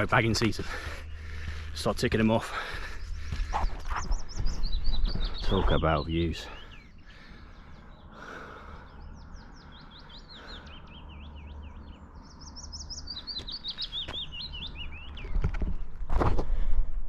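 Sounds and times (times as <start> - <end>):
songbird chirping: 0.0 - 16.0.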